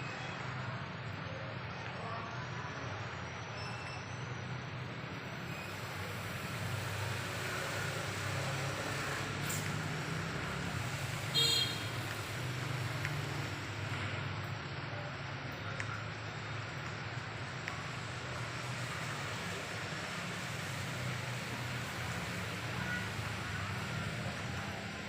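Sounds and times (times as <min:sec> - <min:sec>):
steady rain falling: 0:05.2 - 0:25.0.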